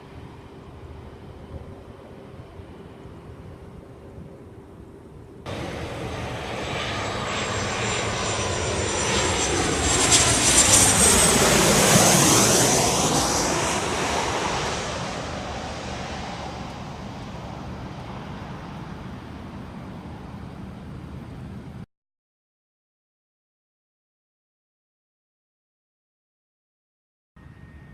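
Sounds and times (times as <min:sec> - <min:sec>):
jet airliner passing by: 0:00.0 - 0:21.8, 0:27.4 - 0:27.9.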